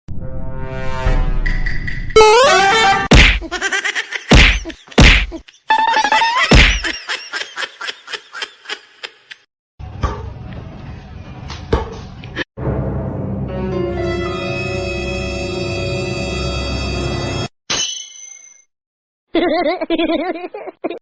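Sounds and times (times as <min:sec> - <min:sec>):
loud whacks: 0:03.1 - 0:03.5, 0:04.3 - 0:05.4, 0:06.5 - 0:06.9
music: 0:12.6 - 0:17.5.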